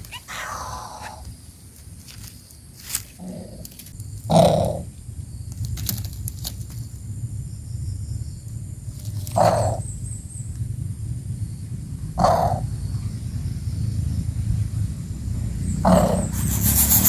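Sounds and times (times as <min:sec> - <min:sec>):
bird chick harsh calls: 0:15.9 - 0:17.0.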